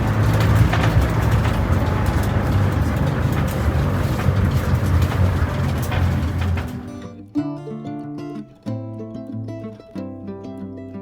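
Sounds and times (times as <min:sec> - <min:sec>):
wind and road noise: 0:00.0 - 0:06.9
vehicle motor humming: 0:00.0 - 0:07.0.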